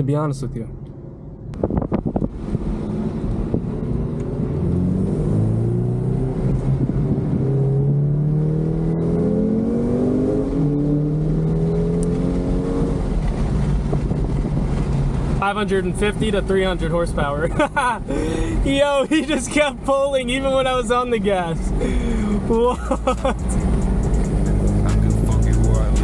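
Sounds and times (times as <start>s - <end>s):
car engine accelerating hard: 1.6s - 15.4s, 21.6s - 26.0s.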